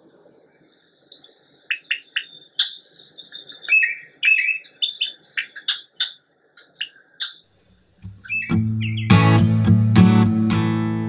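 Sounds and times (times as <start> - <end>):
birds chirping: 0.0 - 9.8
buzzy bird trill: 1.1 - 9.4.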